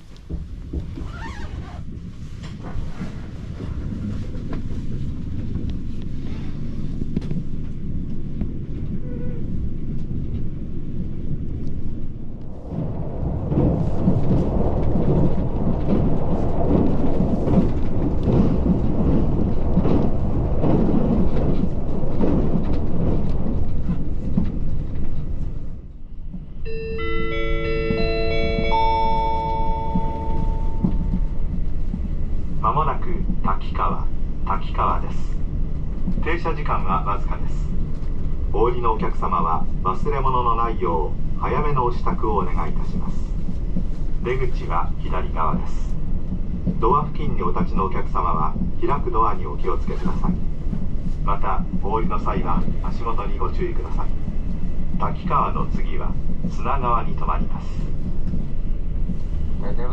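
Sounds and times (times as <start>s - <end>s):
train wheels rumbling on rails: 0.0s - 59.9s
on-board chime: 26.7s - 31.0s.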